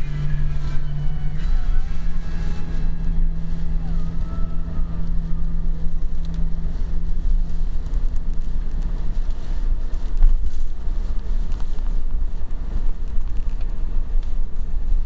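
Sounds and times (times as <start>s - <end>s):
car engine drone: 0.0s - 15.0s
tyres rumbling on road: 0.0s - 15.0s
wind: 0.0s - 15.0s.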